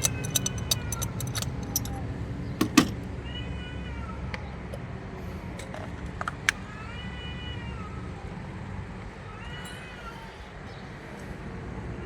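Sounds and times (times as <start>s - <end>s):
ratchet wrench clicking: 0.0s - 2.0s.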